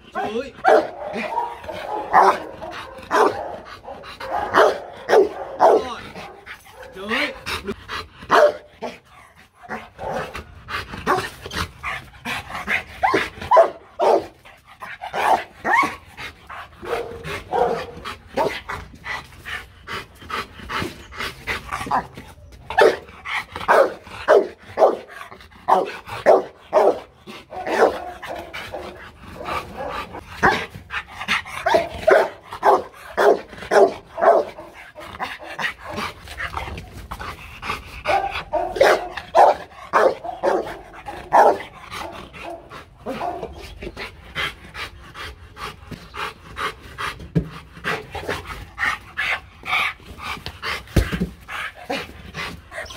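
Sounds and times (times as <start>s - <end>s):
dog barking: 0.2s - 7.0s, 8.3s - 9.0s, 9.7s - 10.3s, 13.1s - 14.3s, 15.1s - 15.9s, 16.8s - 18.5s, 22.8s - 23.0s, 23.7s - 25.1s, 25.7s - 30.6s, 31.6s - 34.8s, 38.1s - 43.6s.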